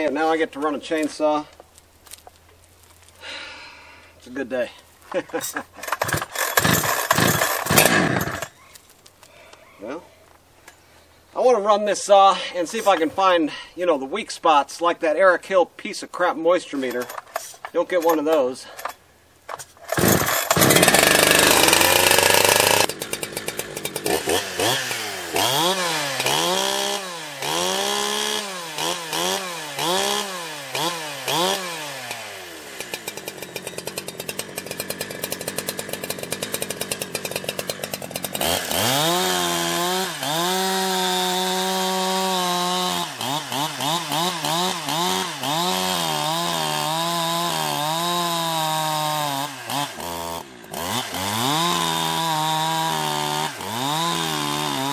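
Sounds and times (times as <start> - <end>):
chainsaw revving: 5.1 - 8.6, 18.0 - 54.9.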